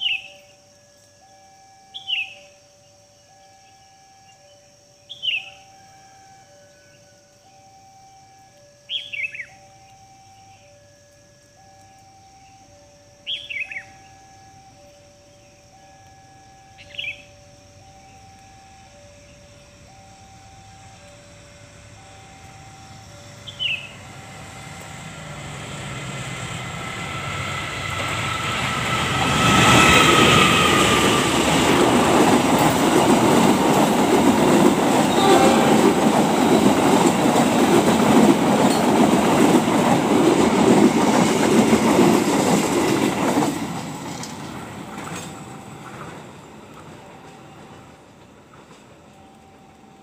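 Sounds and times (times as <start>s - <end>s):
passenger train passing: 8.3s - 50.0s
wheels clattering on rail joints: 24.7s - 49.6s.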